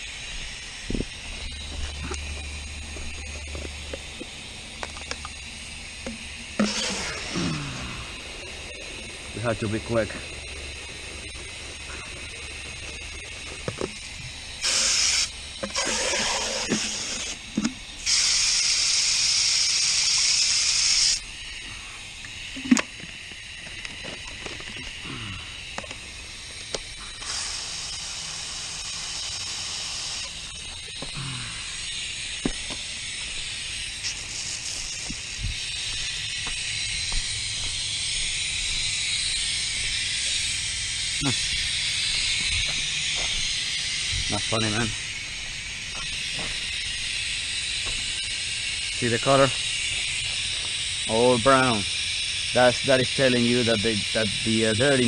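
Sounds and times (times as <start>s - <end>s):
low hum: 0.0s - 18.1s, 30.2s - 50.8s
hissing spray bursts: 0.0s - 55.0s.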